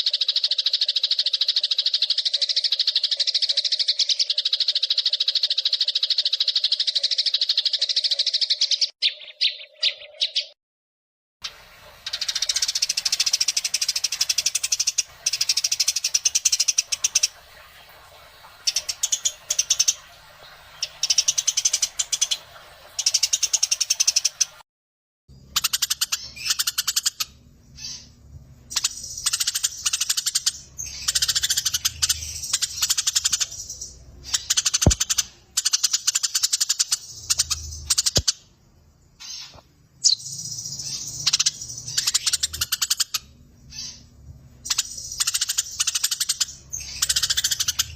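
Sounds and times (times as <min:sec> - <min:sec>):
sparrows chattering: 0:00.0 - 0:10.6, 0:25.4 - 0:38.6, 0:39.2 - 0:47.9.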